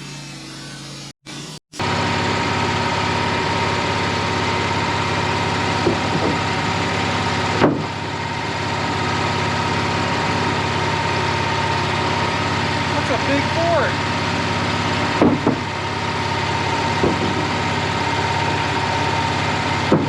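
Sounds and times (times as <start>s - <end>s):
sawmill engine running: 0.0s - 20.0s
short knocks: 5.8s - 6.4s, 15.1s - 15.7s, 16.9s - 17.5s.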